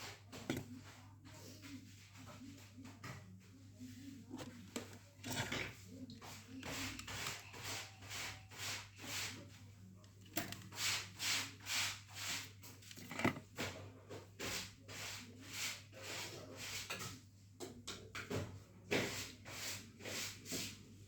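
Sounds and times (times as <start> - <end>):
hand sanding strokes: 6.2 - 9.4.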